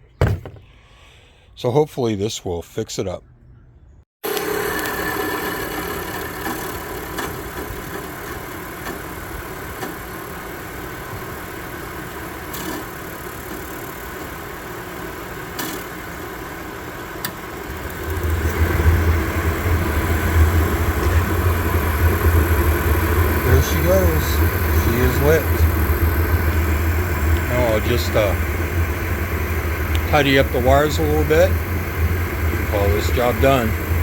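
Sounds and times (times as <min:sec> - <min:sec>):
furnace blower humming: 0:04.2 - 0:34.0
burner low rumble: 0:17.7 - 0:34.0.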